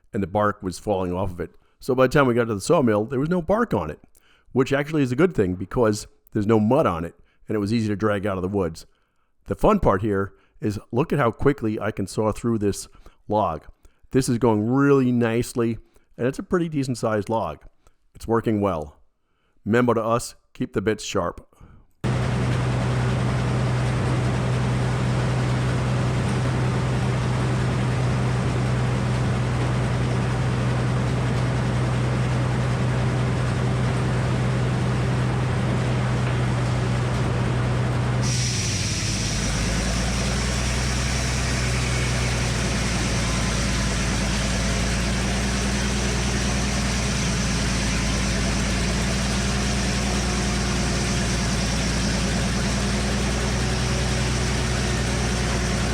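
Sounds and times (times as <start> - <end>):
sawmill sawing log: 22.1 - 55.9
high hiss: 38.2 - 43.2.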